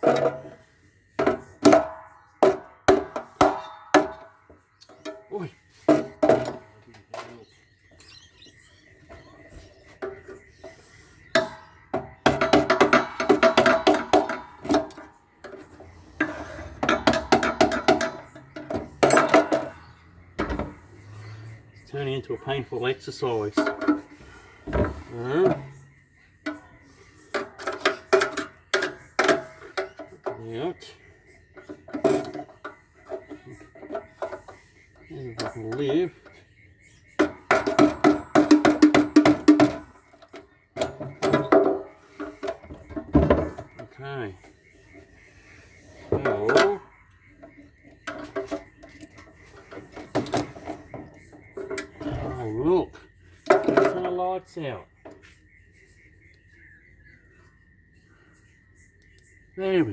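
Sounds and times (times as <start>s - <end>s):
sharp knocks on metal: 37.2s - 40.0s.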